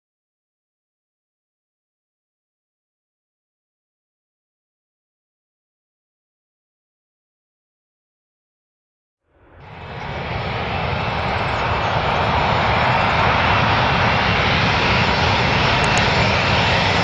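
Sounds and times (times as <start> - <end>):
faint high whine: 9.3 - 16.5
airplane engine rush: 9.3 - 17.0.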